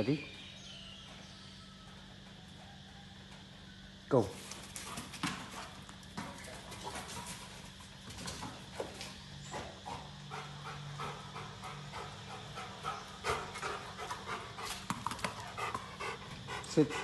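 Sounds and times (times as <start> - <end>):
dog panting: 9.5 - 17.0.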